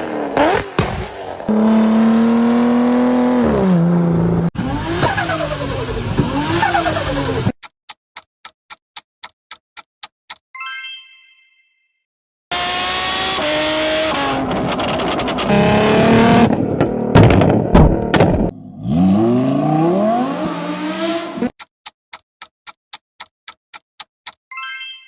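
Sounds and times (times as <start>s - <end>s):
car engine revving: 1.4s - 7.5s, 12.5s - 21.5s
fast ticking timer: 7.6s - 10.4s, 21.5s - 24.4s.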